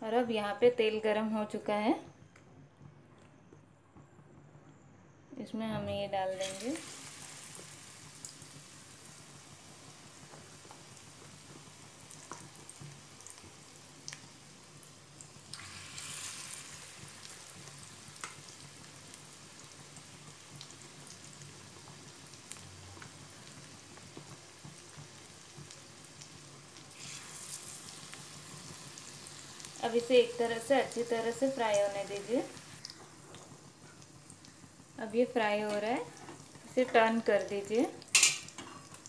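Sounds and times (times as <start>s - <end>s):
battered slices sizzling in oil: 6.2s - 39.0s
slices dropped into hot oil: 38.1s - 39.0s.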